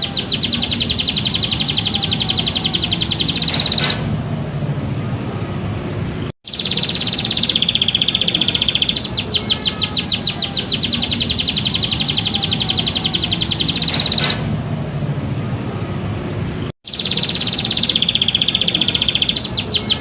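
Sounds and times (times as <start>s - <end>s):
songbird trilling: 0.0s - 4.1s, 6.5s - 14.4s, 16.9s - 20.0s.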